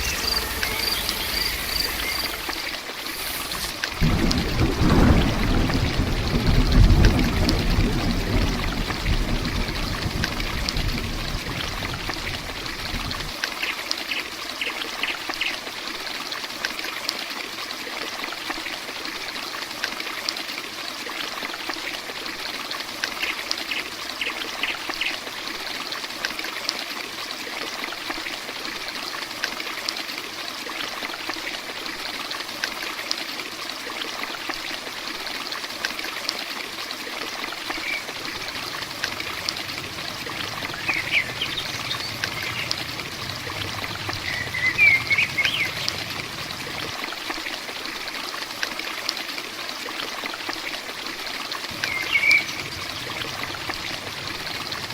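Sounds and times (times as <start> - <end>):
heavy rain falling: 0.0 - 13.5, 37.5 - 48.1, 51.6 - 54.9
low rumble: 38.2 - 46.9, 51.7 - 54.9.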